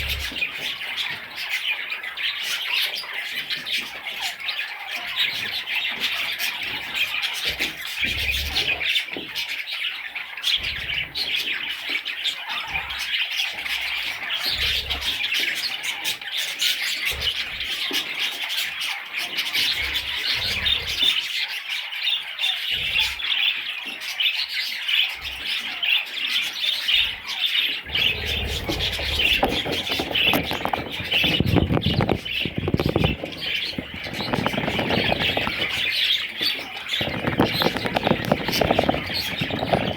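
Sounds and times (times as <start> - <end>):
budgerigars chattering and chirping: 0.0 - 39.9
rough rustling noise: 28.0 - 39.9.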